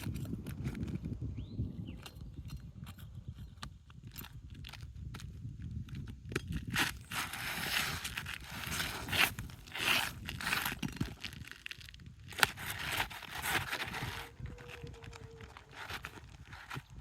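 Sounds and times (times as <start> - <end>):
roof shingles scraping and crunching: 3.4 - 17.0.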